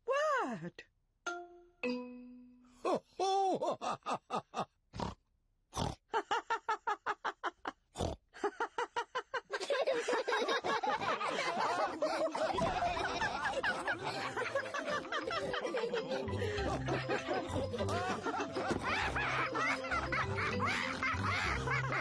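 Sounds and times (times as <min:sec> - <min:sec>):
cartoon characters laughing: 0:09.4 - 0:22.0.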